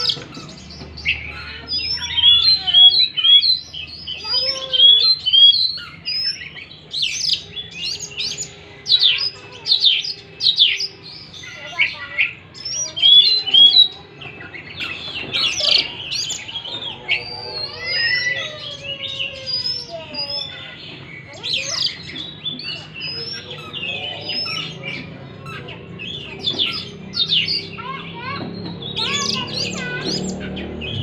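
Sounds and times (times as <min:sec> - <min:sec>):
songbird singing whistles: 0:00.0 - 0:11.6.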